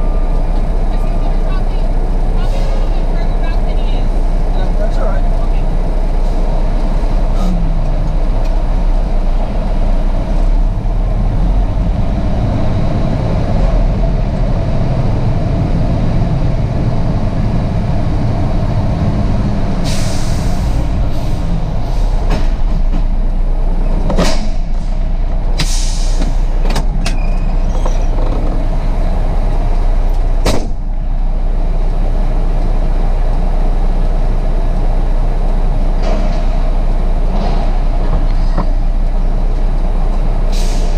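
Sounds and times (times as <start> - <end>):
diesel truck engine rumbling: 0.0 - 40.9
air brake hisses: 19.8 - 22.1, 25.6 - 26.5, 40.5 - 40.9.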